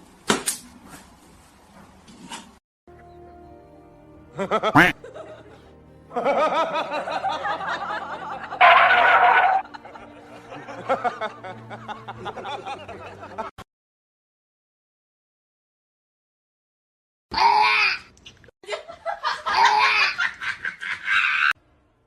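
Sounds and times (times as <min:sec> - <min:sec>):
background music: 0:02.9 - 0:13.5
person laughing: 0:04.4 - 0:13.5, 0:18.6 - 0:21.5.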